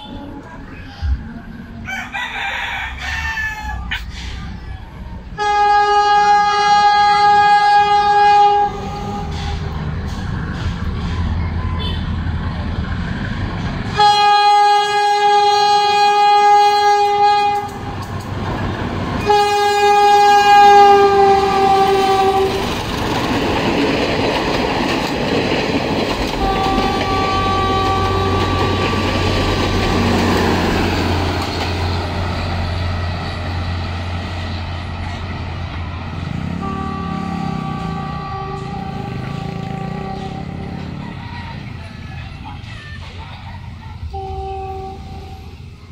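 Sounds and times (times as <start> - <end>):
train rumbling past: 0.0 - 45.9
wheels clacking on rail: 4.0 - 45.9
train horn blasts: 5.3 - 9.8, 13.9 - 18.0, 19.2 - 22.7, 26.4 - 30.6, 36.2 - 41.2, 44.1 - 45.7.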